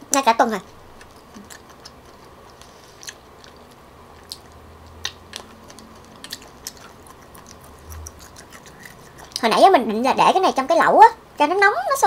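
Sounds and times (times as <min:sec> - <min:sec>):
person chewing food: 0:00.6 - 0:09.7.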